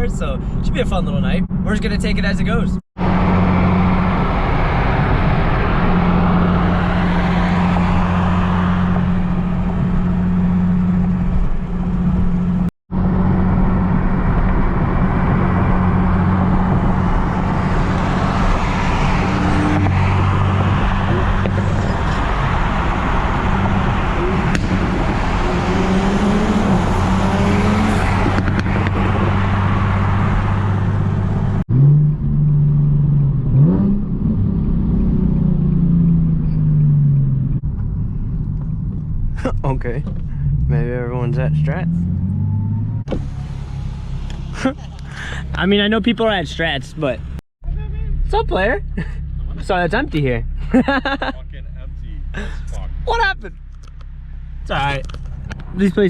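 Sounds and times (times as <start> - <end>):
car engine droning: 0.0 - 56.0
road noise: 0.0 - 56.0.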